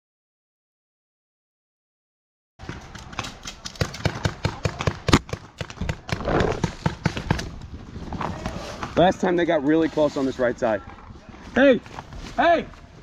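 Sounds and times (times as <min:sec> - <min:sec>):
rustling: 0:05.1 - 0:13.0.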